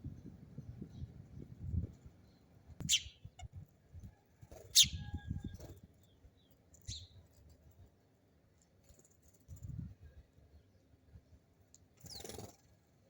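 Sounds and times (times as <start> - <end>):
sparrow chirping: 2.2 - 3.6, 4.5 - 7.3, 12.0 - 12.6.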